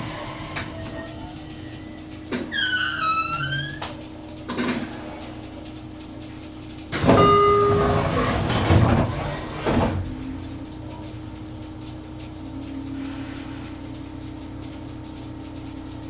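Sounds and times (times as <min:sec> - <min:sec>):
electronic chime: 0:07.0 - 0:08.0
train doors sliding: 0:07.0 - 0:10.1.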